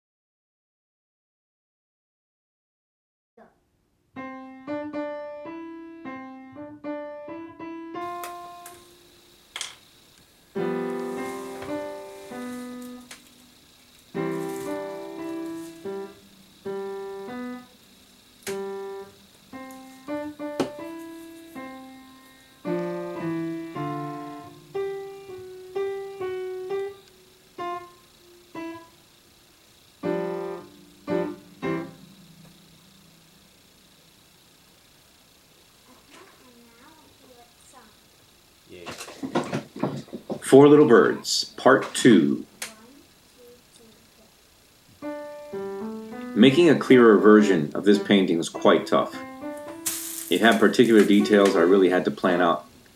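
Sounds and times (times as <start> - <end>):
solo piano music: 4.2 - 34.7, 45.0 - 52.9.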